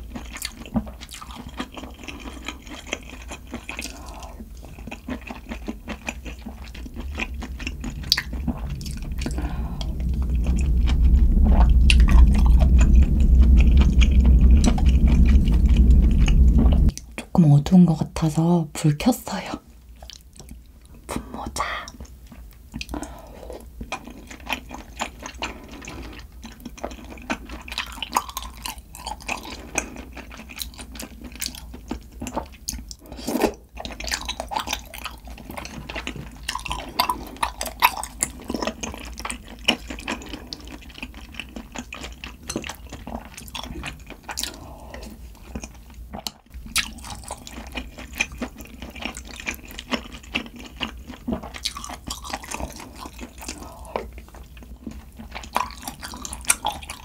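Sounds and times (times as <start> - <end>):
noodles being slurped and chewed: 0.0 - 8.4, 22.3 - 57.0.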